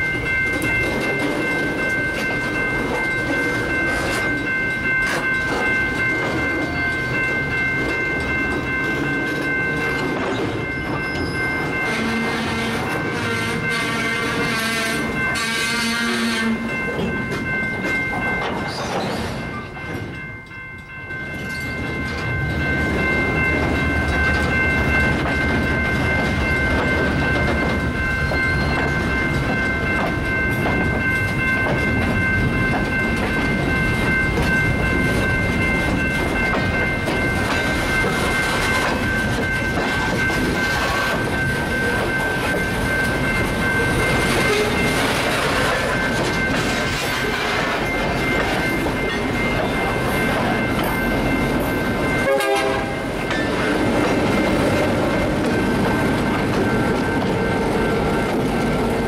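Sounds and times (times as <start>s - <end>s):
diesel locomotive engine: 0.0s - 59.0s
high-pitched ringing: 0.0s - 59.0s.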